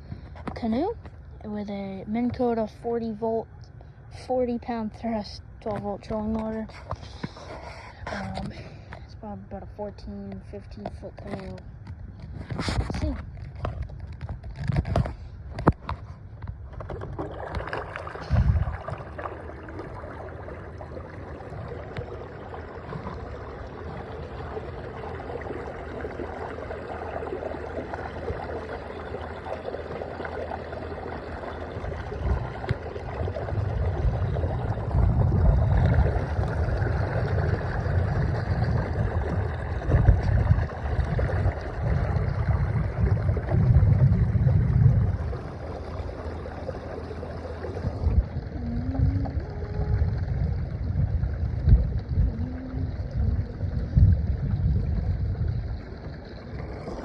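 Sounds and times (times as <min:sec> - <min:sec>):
water rushing along hull: 0:00.0 - 0:57.0
wind on microphone: 0:10.1 - 0:57.0.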